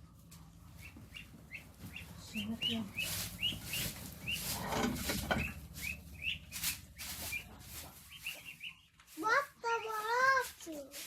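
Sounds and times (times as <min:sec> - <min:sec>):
poultry chicks peeping: 0:00.0 - 0:11.0
rustling: 0:00.0 - 0:11.0.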